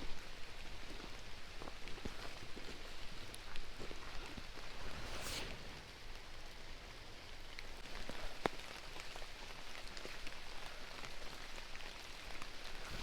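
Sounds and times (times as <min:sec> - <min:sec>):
light rain falling: 0:00.0 - 0:13.0
sharp raindrop: 0:03.4 - 0:13.0.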